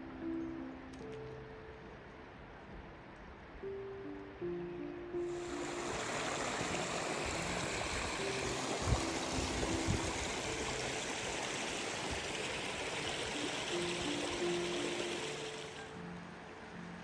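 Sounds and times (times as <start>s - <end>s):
soft background music: 0.0s - 17.0s
river water rushing: 5.3s - 16.7s.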